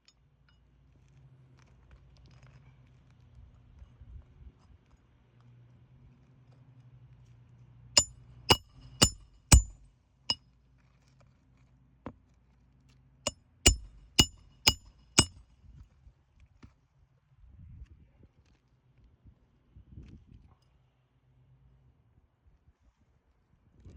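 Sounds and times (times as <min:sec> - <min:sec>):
hammer striking metal: 0:08.0 - 0:09.8, 0:13.7 - 0:15.3.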